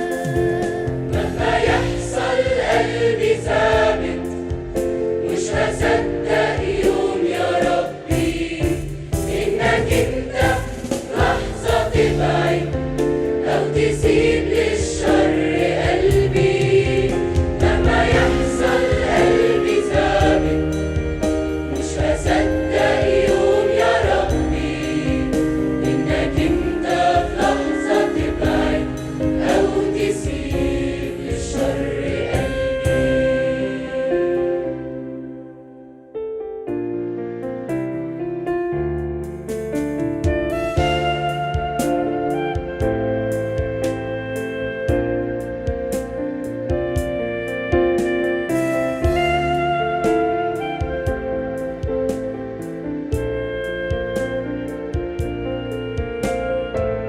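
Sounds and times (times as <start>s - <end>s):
choir singing a hymn: 0.0s - 35.5s, 47.8s - 53.5s
instrumental accompaniment: 0.0s - 57.0s.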